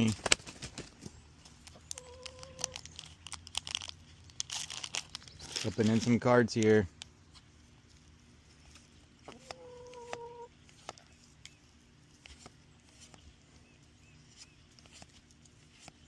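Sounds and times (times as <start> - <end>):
chicken calling: 1.7 - 2.9, 9.2 - 10.6.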